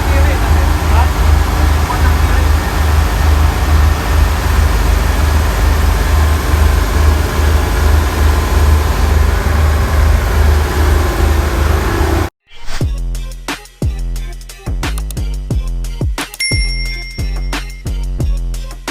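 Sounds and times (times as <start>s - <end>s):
ship machinery throbbing drone: 0.0s - 12.3s.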